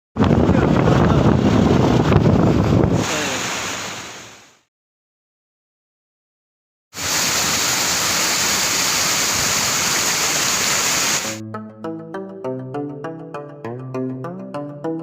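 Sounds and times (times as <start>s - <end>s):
waterfall rushing: 3.0s - 4.5s, 7.0s - 11.4s
plucked melody music: 11.4s - 15.0s.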